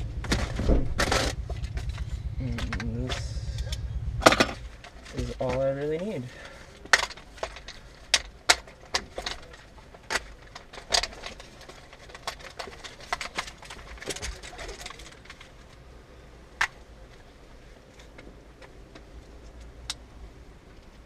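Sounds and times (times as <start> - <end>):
gear clicks and knocks: 0.0 - 15.8.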